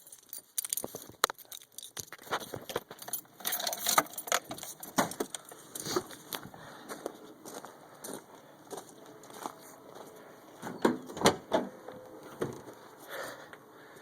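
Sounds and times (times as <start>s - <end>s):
metallic clicks and knocks: 0.0s - 5.5s
keys jangling: 0.0s - 5.9s.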